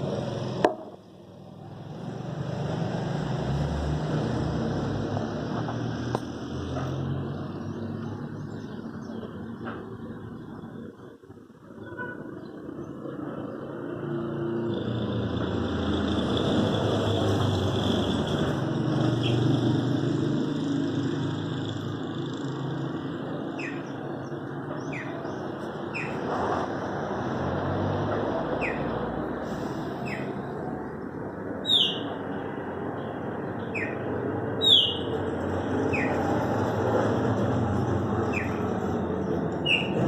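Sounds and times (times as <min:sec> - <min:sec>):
blackbirds calling: 0:21.6 - 0:27.4, 0:28.5 - 0:36.7, 0:38.1 - 0:40.0.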